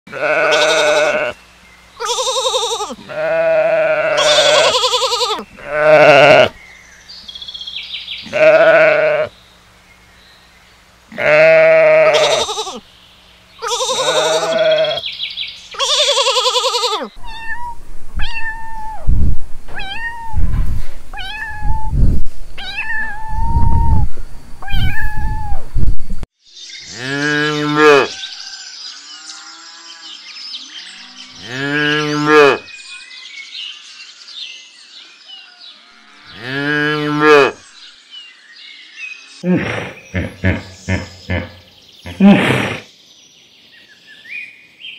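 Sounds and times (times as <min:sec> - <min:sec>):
lamb bleating: 0:00.1 - 0:01.4, 0:02.0 - 0:06.6, 0:08.2 - 0:09.3, 0:11.1 - 0:12.8, 0:13.6 - 0:15.0, 0:15.8 - 0:17.6
cow mooing: 0:03.0 - 0:04.8, 0:05.6 - 0:06.5, 0:13.7 - 0:15.0, 0:26.9 - 0:28.2, 0:30.9 - 0:32.6, 0:35.9 - 0:37.6
kitten mewing: 0:15.8 - 0:19.1, 0:19.7 - 0:20.4, 0:21.1 - 0:22.0, 0:22.6 - 0:24.0.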